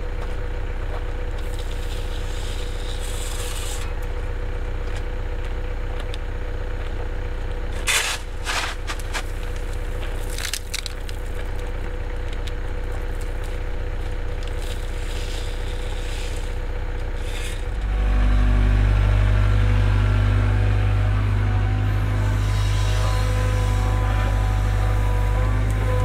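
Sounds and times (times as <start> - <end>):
excavator diesel engine running: 0.0 - 26.0
scraping and crunching of material: 1.4 - 4.0, 7.7 - 18.3.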